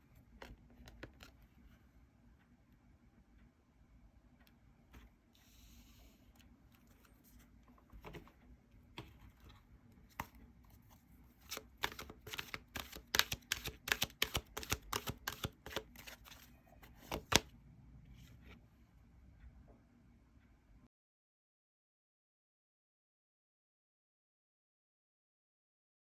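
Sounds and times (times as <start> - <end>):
cards swishing: 11.4 - 16.4
card snap: 11.5 - 15.8
card taps: 11.5 - 16.2
sharp card clicks: 11.5 - 16.2.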